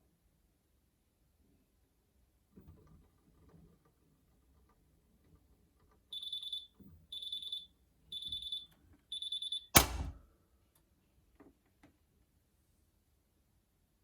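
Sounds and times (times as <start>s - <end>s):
washing machine high beeps: 6.1s - 9.8s.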